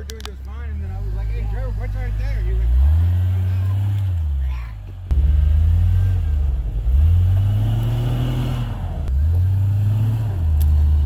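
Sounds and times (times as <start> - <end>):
car engine revving under load: 0.0 - 11.0.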